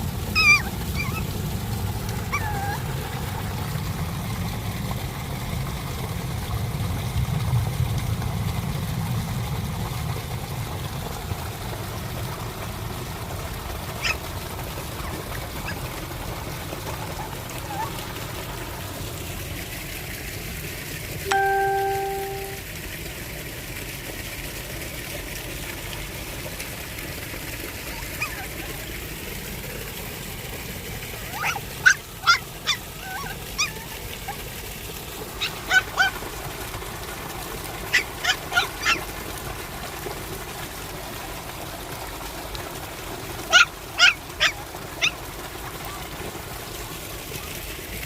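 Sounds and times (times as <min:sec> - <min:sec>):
short pitched animal calls: 0:00.4 - 0:01.2.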